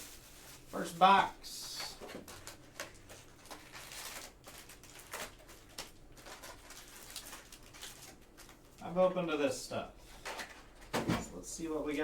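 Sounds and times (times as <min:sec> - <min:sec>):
plastic wrap and cardboard crinkling: 0:00.0 - 0:09.4
small clicks and crackles: 0:02.2 - 0:08.8.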